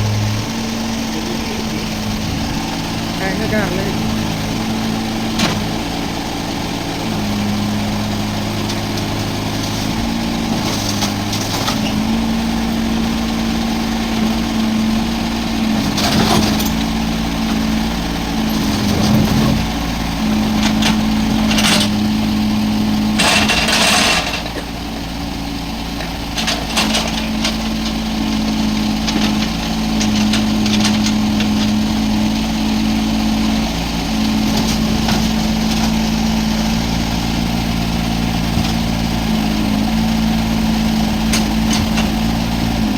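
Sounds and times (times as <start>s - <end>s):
mini excavator diesel engine: 0.0s - 42.9s.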